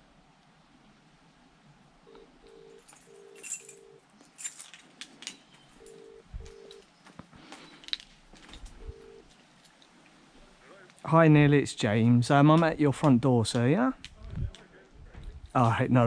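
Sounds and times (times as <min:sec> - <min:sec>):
telephone ringback tone: 0:02.1 - 0:04.0, 0:05.8 - 0:06.8, 0:08.7 - 0:09.3.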